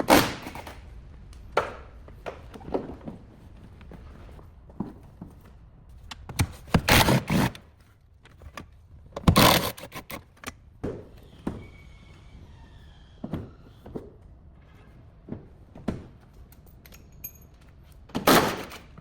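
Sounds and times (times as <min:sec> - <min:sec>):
faint high squeal: 0:11.1 - 0:13.9.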